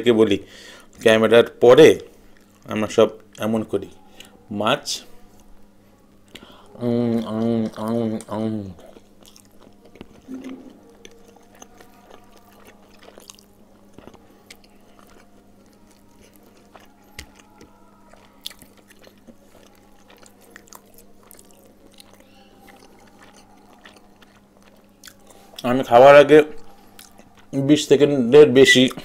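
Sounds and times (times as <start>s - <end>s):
steady low hum: 0.0s - 29.0s
quiet chewing and mouth sounds: 0.7s - 29.0s.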